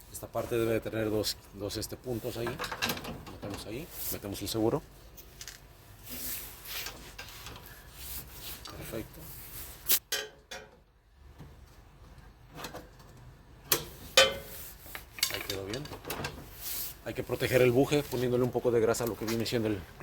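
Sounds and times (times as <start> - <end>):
metal parts clicking and scraping: 5.1 - 5.7, 13.7 - 16.4.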